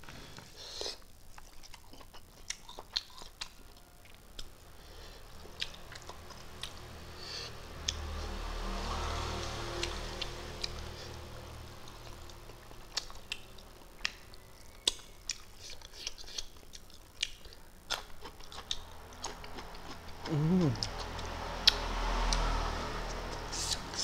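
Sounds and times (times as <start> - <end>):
person chewing and lip-smacking: 0.8 - 4.7, 5.4 - 6.9, 11.8 - 22.4, 23.1 - 24.0
person humming: 20.2 - 20.9.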